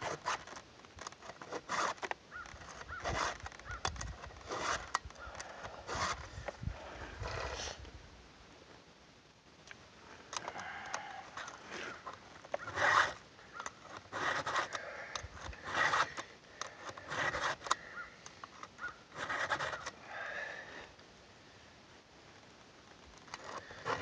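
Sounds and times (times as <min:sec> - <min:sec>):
file rasping on chainsaw teeth: 0:04.3 - 0:05.0, 0:13.9 - 0:17.8, 0:19.2 - 0:19.9.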